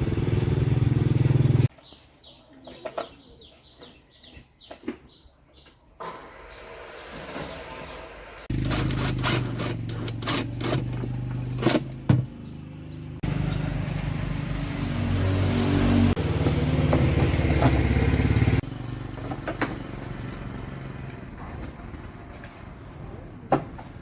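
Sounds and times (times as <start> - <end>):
machine motor running: 6.5 - 14.5
sharp metallic clicks and knocks: 8.5 - 12.4.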